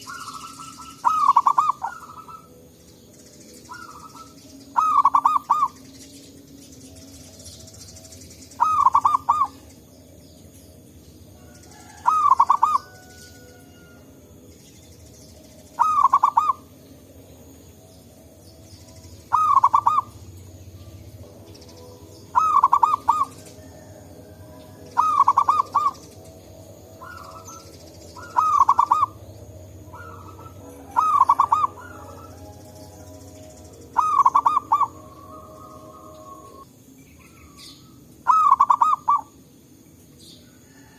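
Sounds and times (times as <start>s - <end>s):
dove cooing: 0.0s - 2.7s, 3.7s - 5.8s, 8.6s - 9.7s, 11.4s - 14.0s, 15.7s - 16.8s, 19.2s - 21.2s, 22.3s - 36.6s, 37.4s - 39.4s.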